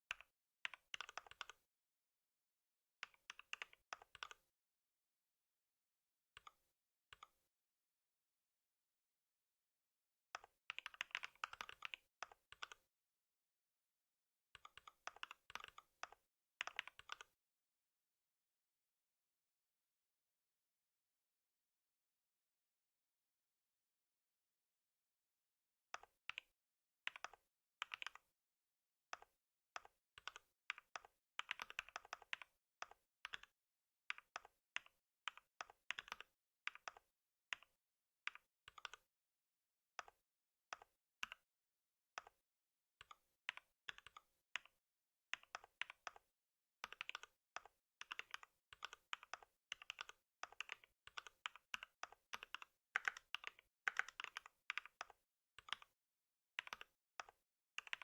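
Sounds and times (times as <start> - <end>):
computer keyboard typing: 0.1 - 1.6, 3.0 - 4.4, 10.4 - 12.8, 14.6 - 17.3, 27.1 - 28.2, 29.2 - 33.5, 34.1 - 37.7, 46.8 - 55.9, 56.6 - 58.0.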